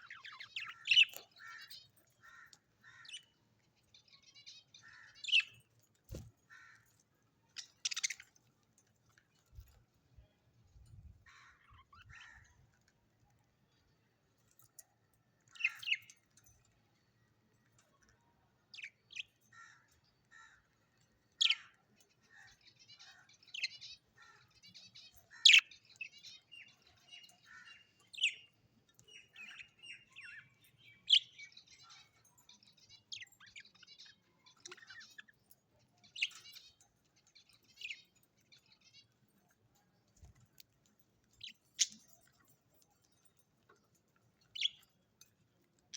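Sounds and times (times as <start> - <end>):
parrots chirping: 7.6 - 8.4.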